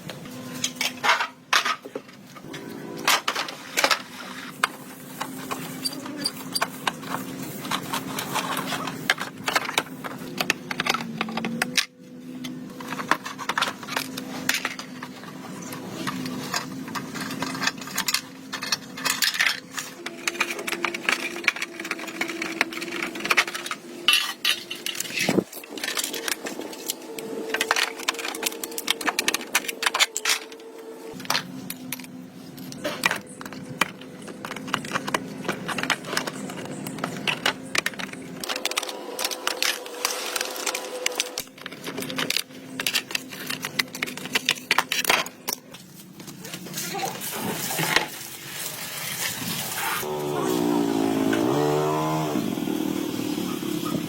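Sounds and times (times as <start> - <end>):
metal parts clinking: 5.2 - 47.0
steady motor hum: 49.6 - 54.0.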